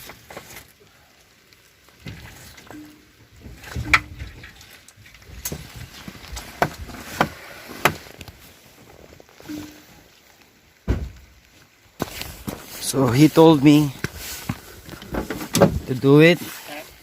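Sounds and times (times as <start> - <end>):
sharp metallic knocks and clicks: 3.6 - 4.4.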